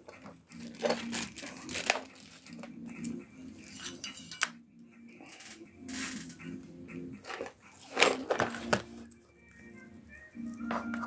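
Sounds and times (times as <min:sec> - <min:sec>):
crinkling and rustling: 0:00.0 - 0:02.8, 0:07.2 - 0:09.1.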